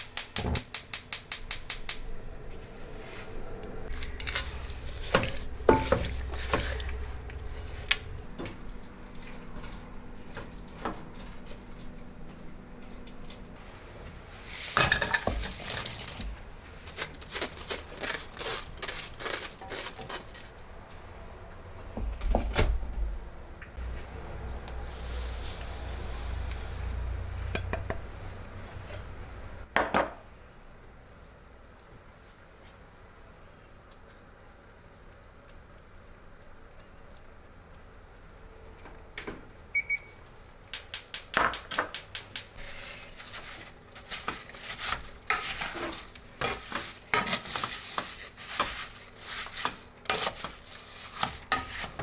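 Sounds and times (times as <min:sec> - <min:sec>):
steady low hum: 0:01.3 - 0:13.9
dishes clinking: 0:05.1 - 0:06.9.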